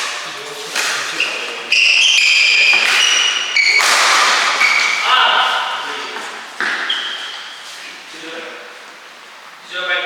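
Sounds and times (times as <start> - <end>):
shoes squeaking on court: 0.0 - 8.0.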